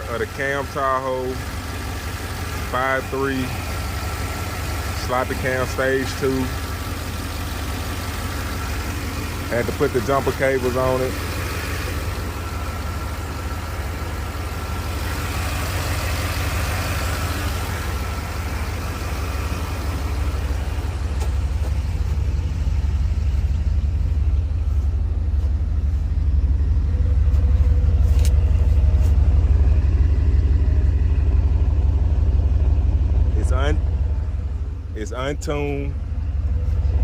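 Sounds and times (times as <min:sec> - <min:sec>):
car engine idling roughly: 0:00.0 - 0:37.0.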